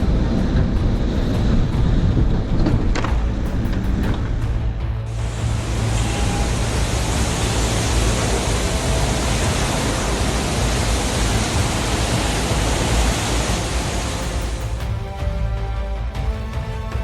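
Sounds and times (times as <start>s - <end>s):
loud rushing noise: 0.0s - 16.3s
low steady drone: 0.0s - 17.0s.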